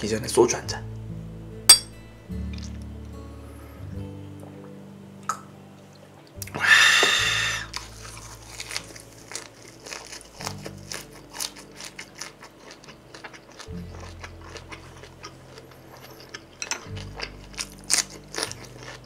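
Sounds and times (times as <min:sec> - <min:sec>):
chewing with mouth clicks: 0:07.7 - 0:19.0.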